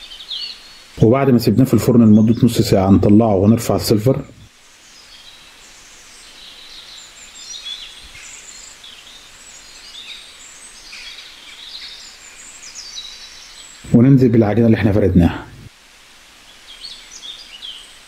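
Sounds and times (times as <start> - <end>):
small birds chirping: 0.0 - 15.6, 16.4 - 18.0
faint background hiss: 0.0 - 18.0.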